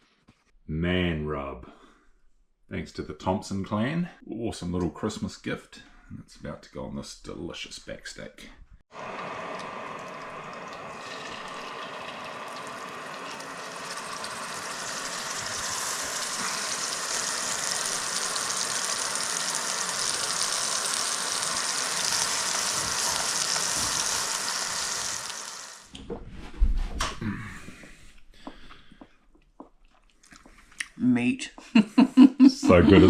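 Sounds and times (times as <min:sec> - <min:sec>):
meat sizzling in a pan: 0:08.9 - 0:25.9.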